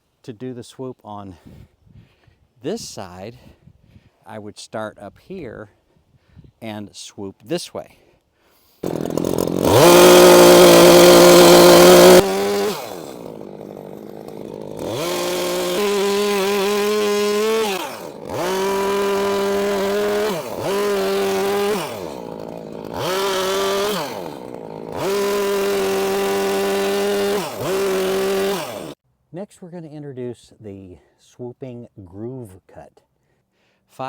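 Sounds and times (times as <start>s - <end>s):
chainsaw cutting into log: 8.8s - 29.0s
chainsaw revving: 8.8s - 29.0s.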